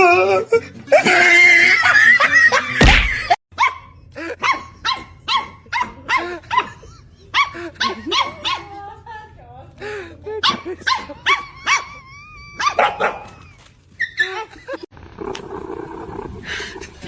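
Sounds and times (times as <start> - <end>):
dog yapping: 3.6 - 6.7, 12.6 - 13.4.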